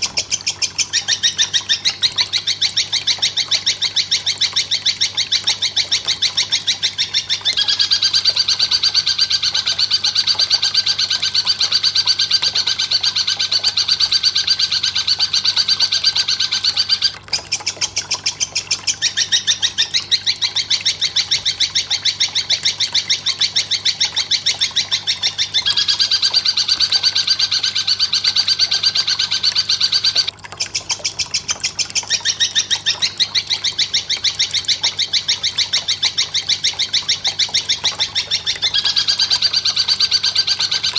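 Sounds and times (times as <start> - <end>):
sharp high bird chirps: 7.6 - 17.2, 25.4 - 30.3.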